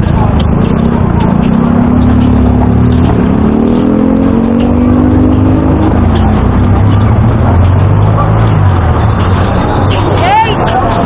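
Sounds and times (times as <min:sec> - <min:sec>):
street traffic rumble: 0:00.0 - 0:11.0
vehicle engine accelerating: 0:00.0 - 0:11.0.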